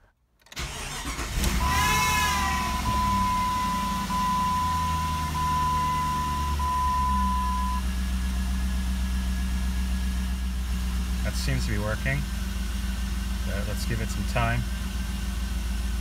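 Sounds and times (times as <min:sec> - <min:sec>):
car engine idling: 0:00.6 - 0:16.0
high beeping: 0:01.5 - 0:07.8.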